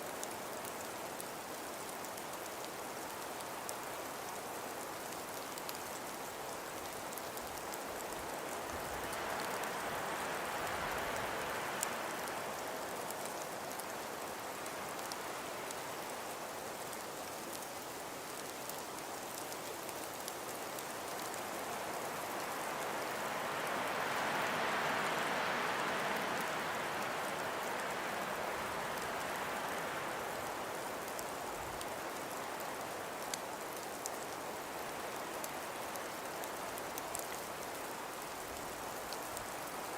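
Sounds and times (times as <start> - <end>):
falling snow hiss: 0.0 - 39.9
snow grains ticking: 0.0 - 39.9
wind blowing in gusts: 6.3 - 16.2, 20.5 - 33.8.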